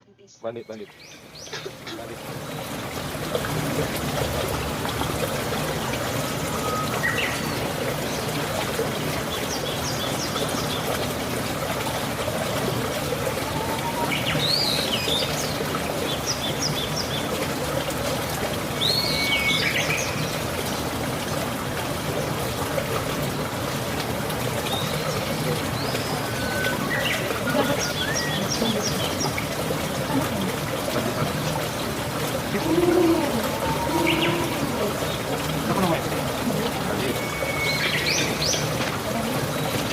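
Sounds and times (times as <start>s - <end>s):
small birds chirping: 0.1s - 2.7s, 24.7s - 30.4s.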